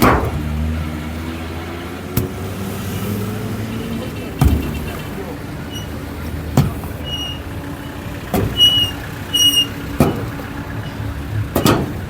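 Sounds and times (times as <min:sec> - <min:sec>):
sharp knocks: 0:00.0 - 0:00.6, 0:10.0 - 0:10.4, 0:11.5 - 0:12.0
low engine rumble: 0:00.0 - 0:12.0.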